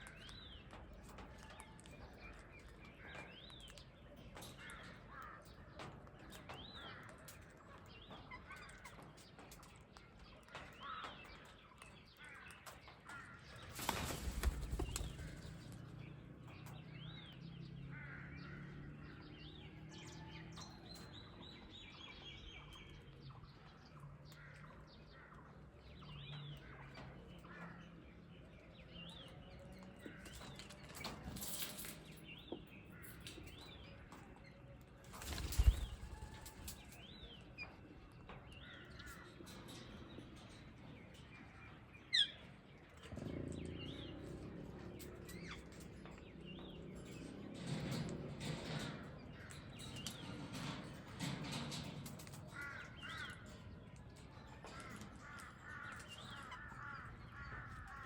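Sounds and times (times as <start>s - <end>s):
small birds chirping: 0.0s - 58.0s
wings flapping: 13.6s - 15.8s, 35.0s - 37.0s.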